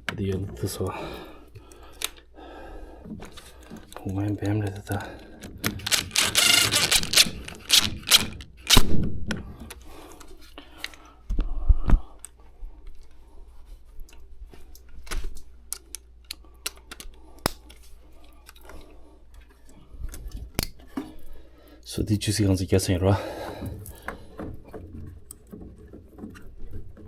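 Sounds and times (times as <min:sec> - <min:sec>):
hand tools clicking and knocking: 0:05.4 - 0:08.8
rustling clatter: 0:05.8 - 0:08.8.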